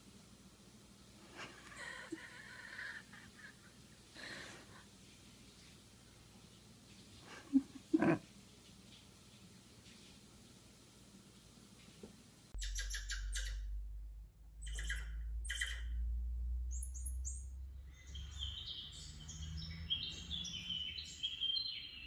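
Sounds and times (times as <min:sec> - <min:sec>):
steady low rumble: 0:12.5 - 0:18.4
harsh bird calls: 0:14.6 - 0:16.0.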